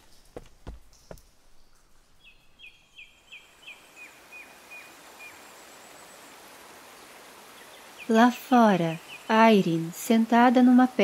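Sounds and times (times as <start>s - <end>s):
steady outdoor hiss: 0.0s - 11.0s
bird chirping: 0.9s - 6.0s.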